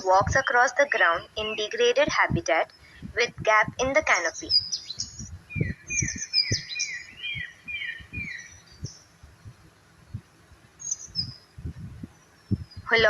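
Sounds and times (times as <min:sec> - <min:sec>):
soft low thumps: 0:01.1 - 0:13.0
high bird chirps: 0:04.3 - 0:09.5, 0:10.8 - 0:13.0
bird whistling falling notes: 0:04.8 - 0:08.6.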